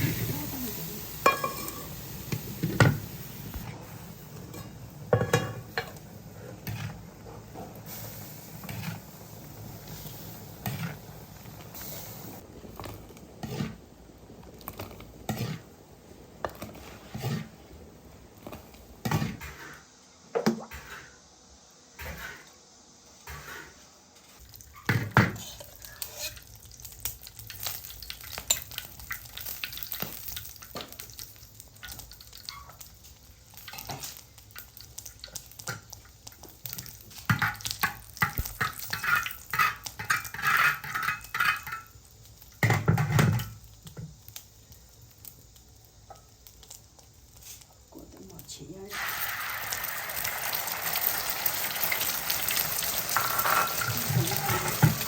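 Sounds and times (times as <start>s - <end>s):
food sizzling in wok: 0.0s - 55.0s
metal spatula scraping pan: 25.4s - 26.4s, 38.9s - 41.9s.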